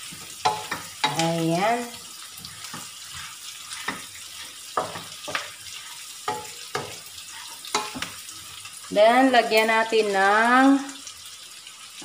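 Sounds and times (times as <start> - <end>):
pork sizzling in a wok: 0.0 - 12.0
spatula knocking against pan: 0.4 - 1.2, 4.8 - 5.6, 6.3 - 7.1, 7.7 - 8.2.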